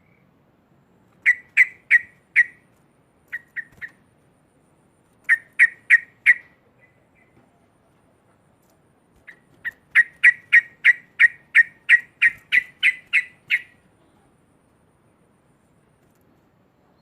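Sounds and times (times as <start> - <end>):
bird sharp repeated notes: 1.1 - 2.6, 3.3 - 4.0, 5.2 - 7.4, 9.2 - 13.8.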